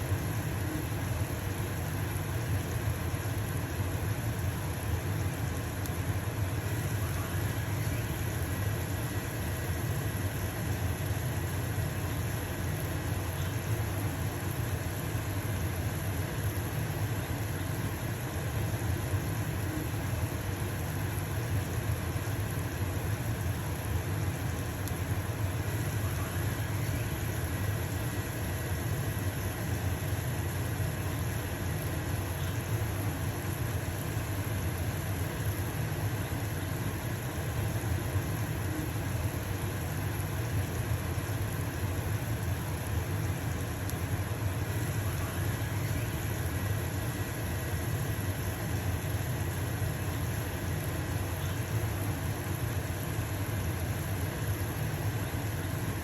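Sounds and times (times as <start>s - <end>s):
pancake sizzling in a pan: 0.0s - 56.0s
range hood fan humming: 0.0s - 56.0s.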